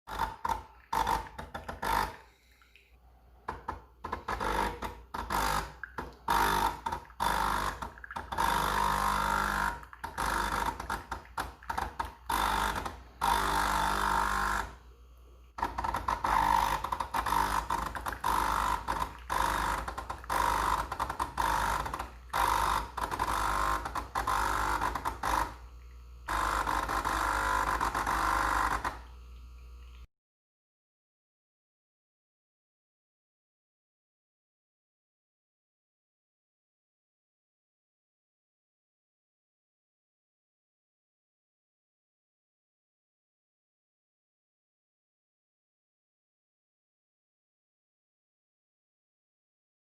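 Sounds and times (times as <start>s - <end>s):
coffee machine pump buzzing: 0.1s - 2.6s, 3.4s - 30.1s.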